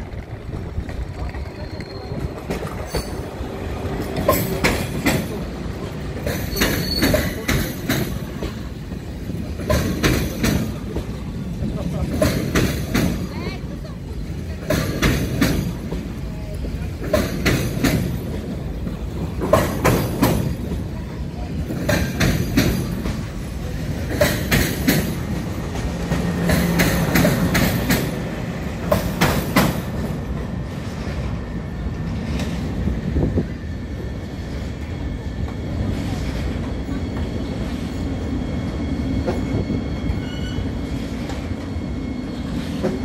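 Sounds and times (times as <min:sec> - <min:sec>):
train wheels clacking over rail joints: 0:00.0 - 0:13.6, 0:14.2 - 0:31.2
electric train running with whine: 0:17.3 - 0:43.0.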